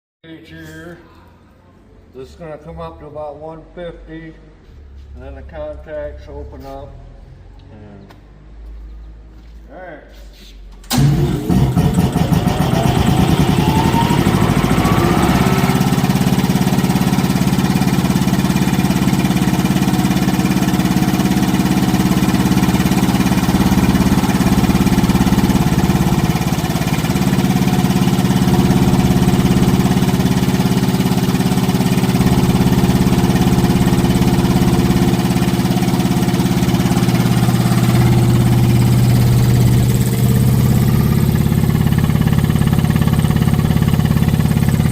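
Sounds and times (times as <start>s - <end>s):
air compressor running: 10.9s - 44.9s.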